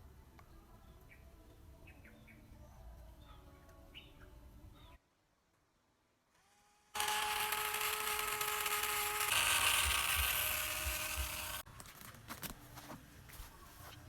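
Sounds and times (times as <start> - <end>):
small electric motor whirring: 6.3 - 11.7.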